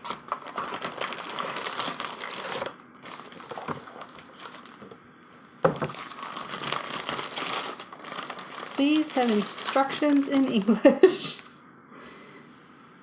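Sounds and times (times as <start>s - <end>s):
paper and packaging crinkling: 0.0s - 5.0s, 5.7s - 11.0s.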